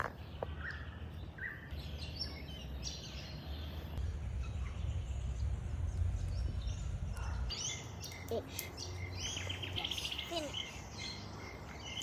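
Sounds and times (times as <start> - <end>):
birds chirping: 0.0 - 12.0
steady low rumble: 3.8 - 7.6.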